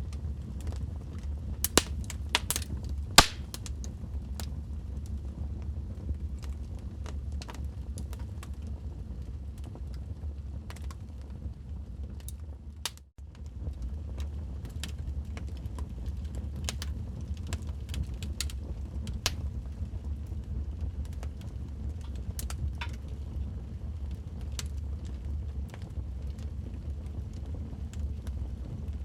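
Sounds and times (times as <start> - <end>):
wood fire crackling: 1.6 - 3.9, 14.2 - 19.8.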